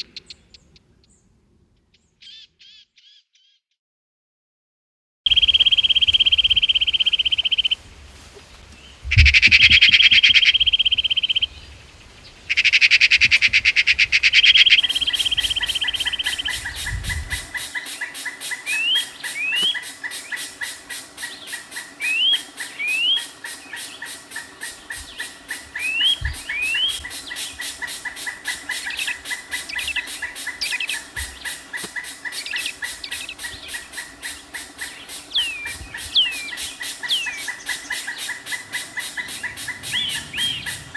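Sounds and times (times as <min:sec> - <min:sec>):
bird chirps: 0:01.9 - 0:03.6, 0:14.4 - 0:40.9
bird buzzing trill: 0:14.6 - 0:40.9.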